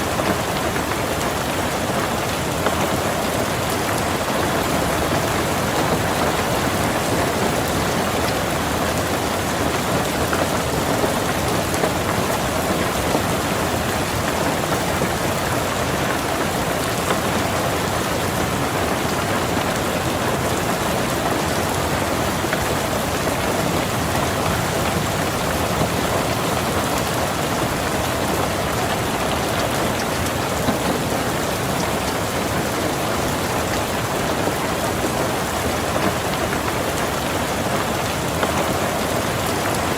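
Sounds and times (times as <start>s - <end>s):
rain on car roof: 0.0s - 39.9s.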